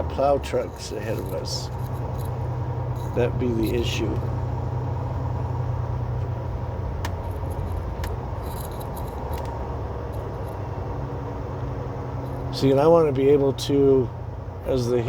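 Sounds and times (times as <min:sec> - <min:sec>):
road noise: 0:00.0 - 0:15.0
truck diesel engine droning: 0:00.0 - 0:15.0.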